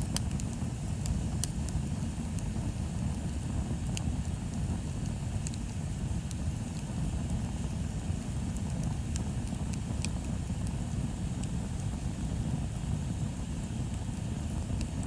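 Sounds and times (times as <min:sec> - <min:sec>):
bonfire crackling and popping: 0:00.0 - 0:15.0
fire low rumble: 0:00.0 - 0:15.0.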